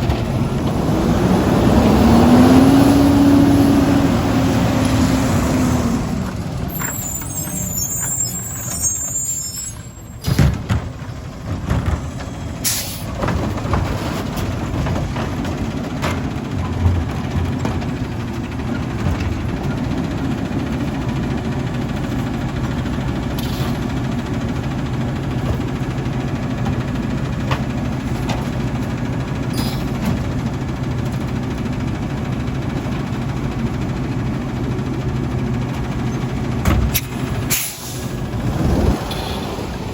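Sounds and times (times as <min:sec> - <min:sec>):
garbage truck diesel engine running: 0:00.0 - 0:39.9
air brakes hissing: 0:06.7 - 0:10.6, 0:12.6 - 0:13.2, 0:23.4 - 0:23.9, 0:29.5 - 0:30.0, 0:36.9 - 0:38.2.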